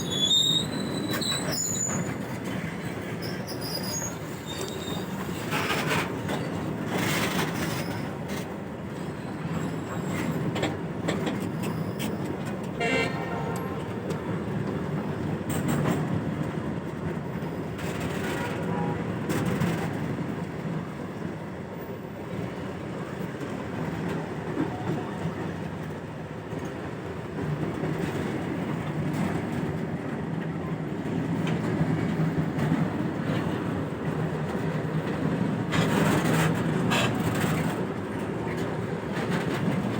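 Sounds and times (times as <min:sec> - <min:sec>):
diesel locomotive engine drone: 0:00.0 - 0:39.9
train horn toot: 0:12.8 - 0:14.0, 0:18.6 - 0:19.2
wagons clattering over rails: 0:31.3 - 0:39.9.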